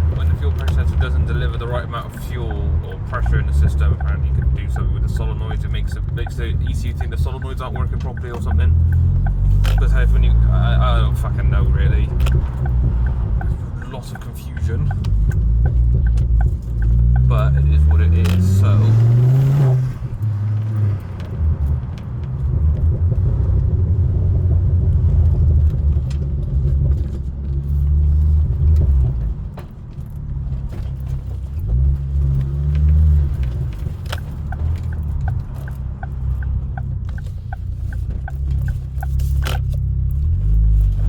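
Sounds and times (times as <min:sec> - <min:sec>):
quick even ticking: 0:00.0 - 0:20.9, 0:32.3 - 0:41.0
car engine and road rumble: 0:00.0 - 0:41.0.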